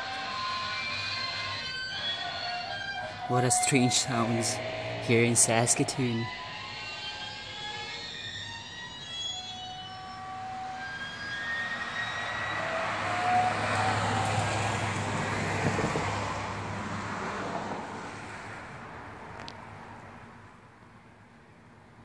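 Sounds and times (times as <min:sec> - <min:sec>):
rushing rumble: 0:02.5 - 0:07.6.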